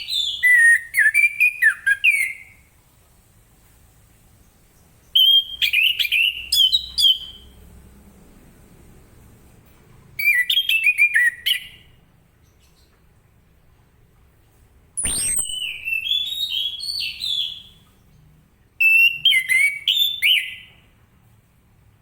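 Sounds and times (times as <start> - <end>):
thrush singing whistled notes: 15.0 - 17.8.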